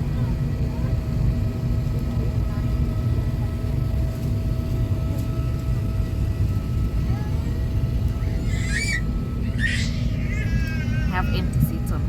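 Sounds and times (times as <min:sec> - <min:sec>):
aircraft cabin rumble: 0:00.0 - 0:12.0
faint hum tones: 0:03.8 - 0:12.0.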